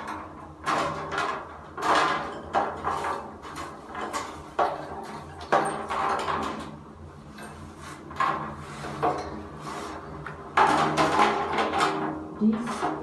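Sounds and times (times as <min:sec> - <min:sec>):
birdcage scraping and knocking: 0:00.0 - 0:13.0.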